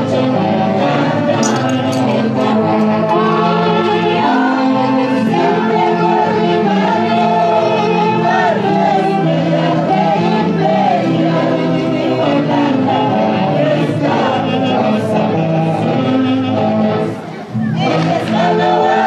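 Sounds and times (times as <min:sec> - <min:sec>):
saxophone orchestra playing melody: 0:00.0 - 0:19.0.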